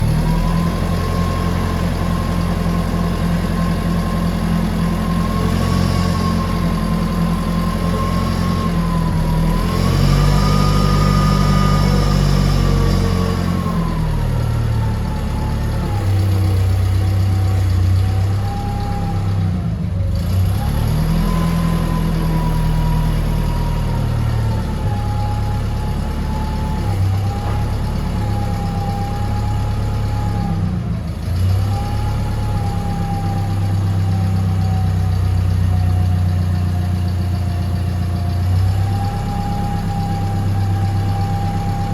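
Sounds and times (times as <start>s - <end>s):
forklift engine running: 0.0s - 41.9s.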